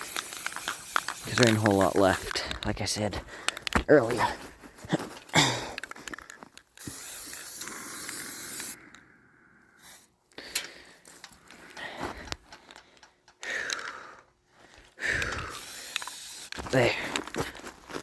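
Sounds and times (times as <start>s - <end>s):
aerosol spray can hissing: 0.0s - 2.3s, 6.8s - 8.8s, 15.5s - 16.5s
spray can clicks and rattles: 0.0s - 2.7s, 5.8s - 8.8s, 15.5s - 16.8s.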